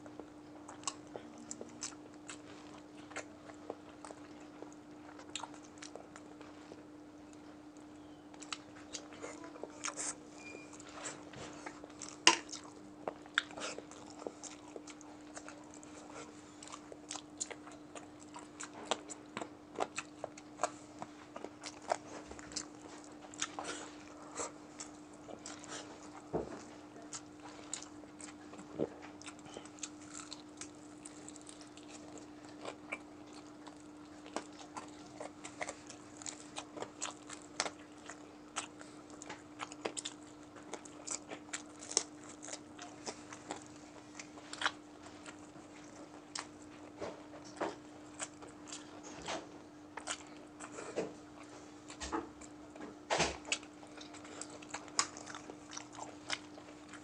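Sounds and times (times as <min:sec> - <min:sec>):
faint low hum: 0:00.0 - 0:57.0
wet chewing with mouth clicks: 0:00.0 - 0:57.0.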